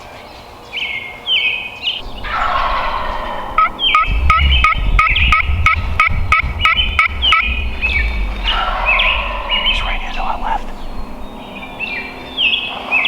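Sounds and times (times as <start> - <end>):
turkey gobbling: 2.0 - 11.1.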